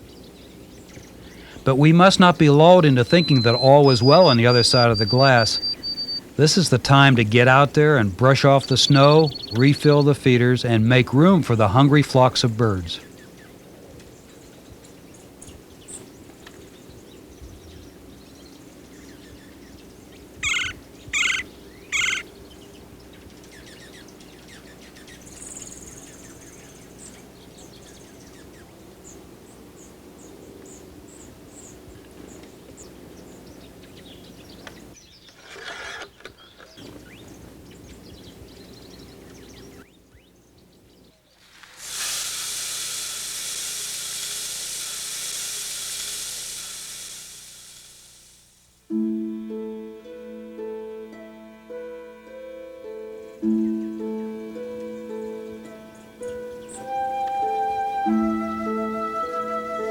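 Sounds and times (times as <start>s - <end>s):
steady low hum: 0.0s - 35.0s, 41.6s - 49.0s
harsh bird calls: 0.0s - 41.4s
high bird chips: 1.1s - 10.2s, 20.4s - 22.2s, 41.4s - 48.6s.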